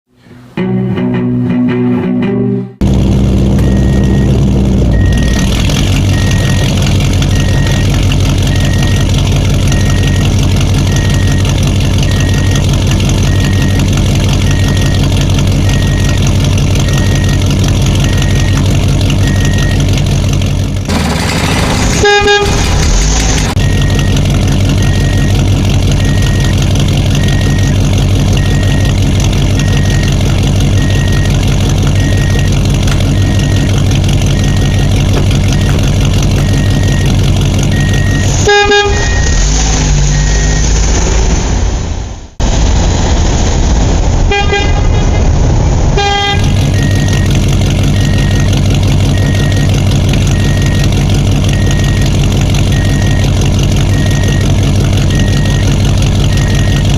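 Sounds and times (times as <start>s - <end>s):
heavy vehicle engine running: 0.1s - 56.9s
reversing alarm beeping: 3.6s - 19.9s, 21.4s - 29.0s, 29.6s - 40.8s, 46.6s - 56.9s
vehicle horn honking: 21.9s - 23.0s, 38.4s - 39.4s, 44.3s - 45.0s, 46.0s - 46.6s.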